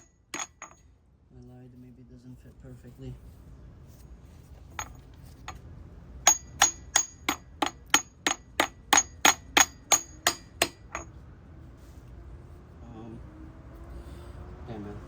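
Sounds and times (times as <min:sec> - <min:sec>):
hammer striking metal socket: 0:00.0 - 0:00.8, 0:06.3 - 0:11.1.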